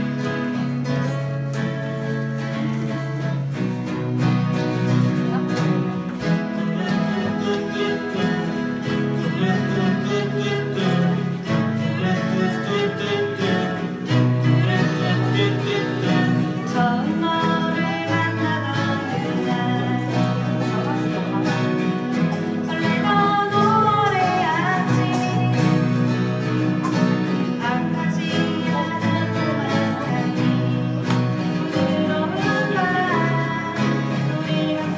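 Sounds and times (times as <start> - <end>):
acoustic guitars strumming: 0.0 - 34.9.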